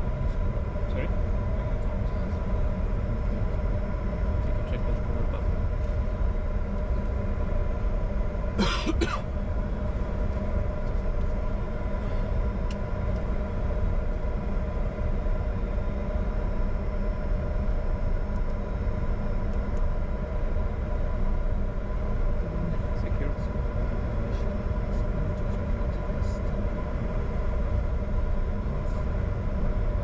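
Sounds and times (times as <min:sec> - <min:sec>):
jet engines idling rumble: 0:00.0 - 0:30.0
steady hum tones: 0:00.0 - 0:30.0
person clearing throat: 0:08.6 - 0:09.3.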